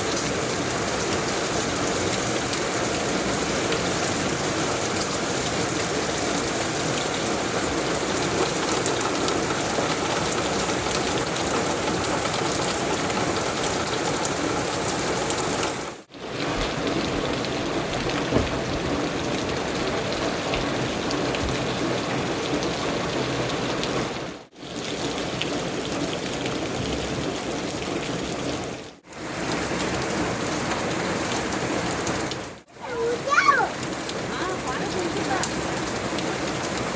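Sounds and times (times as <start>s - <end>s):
steady rain hiss: 0.0s - 36.9s.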